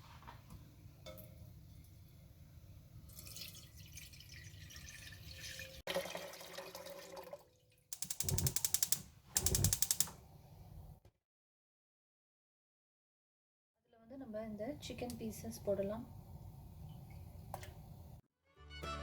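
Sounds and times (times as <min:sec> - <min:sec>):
water pouring into a pot: 0:03.0 - 0:08.6.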